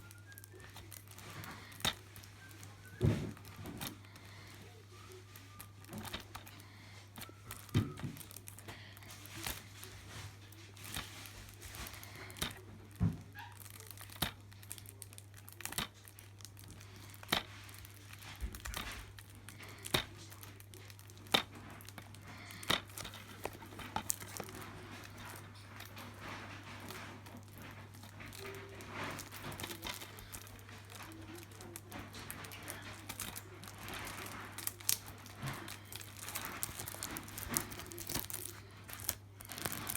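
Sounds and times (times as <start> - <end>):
plastic wrap crinkling: 0.0 - 39.9.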